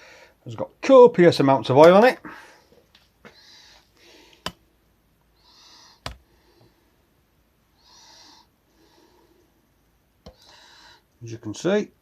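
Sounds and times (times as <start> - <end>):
quiet breathing: 0.0 - 0.5, 2.2 - 11.2.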